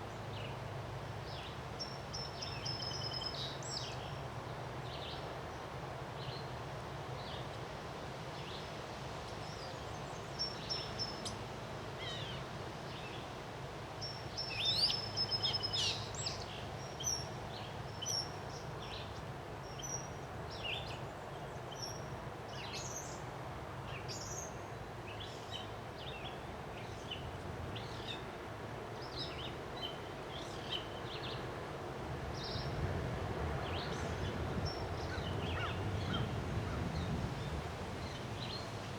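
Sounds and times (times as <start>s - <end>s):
wind blowing: 32.1s - 38.9s.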